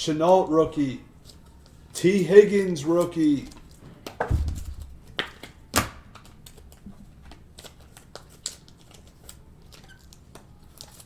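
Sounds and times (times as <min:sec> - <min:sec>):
cards clicking and sliding: 0:03.0 - 0:11.0.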